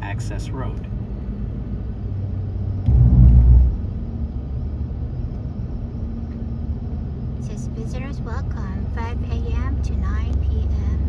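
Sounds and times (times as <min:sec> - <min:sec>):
road and engine rumble in car: 0:00.0 - 0:11.0
loud low rumble: 0:01.2 - 0:05.3.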